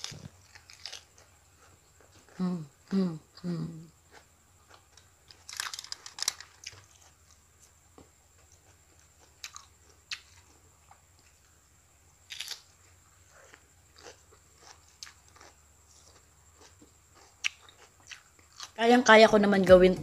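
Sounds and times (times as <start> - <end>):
crunching lettuce: 0.0 - 2.4, 4.1 - 7.8, 12.2 - 18.8.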